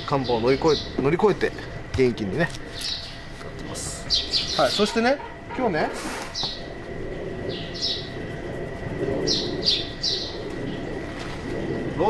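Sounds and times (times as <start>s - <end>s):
small bird chirping: 0.0s - 5.4s, 6.3s - 11.9s.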